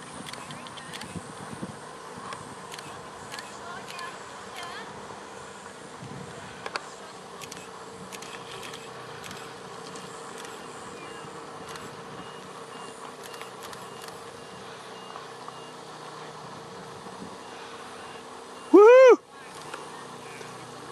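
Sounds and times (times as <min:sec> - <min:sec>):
mechanical hum: 0:00.0 - 0:20.9
faint high beeps: 0:10.0 - 0:15.9, 0:17.4 - 0:20.5.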